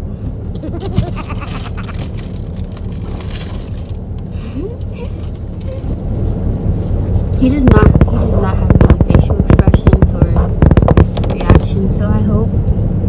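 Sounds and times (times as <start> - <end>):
car engine idling: 0.0 - 12.9
rustling and clatter of handling: 1.0 - 4.3.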